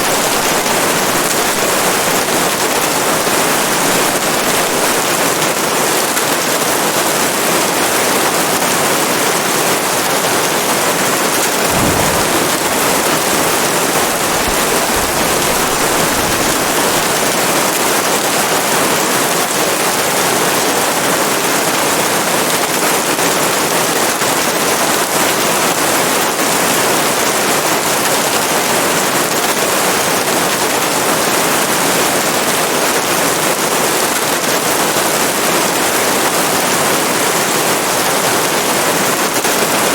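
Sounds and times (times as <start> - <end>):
heavy rain falling: 0.0 - 39.9
faint low rumble: 11.6 - 17.4.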